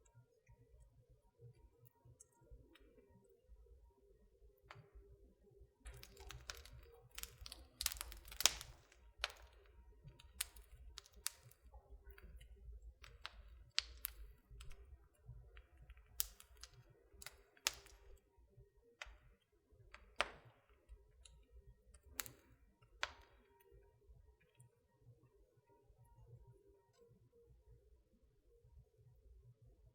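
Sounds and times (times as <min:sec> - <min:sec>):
wood fire crackling and popping: 0:05.9 - 0:18.3, 0:19.0 - 0:23.8.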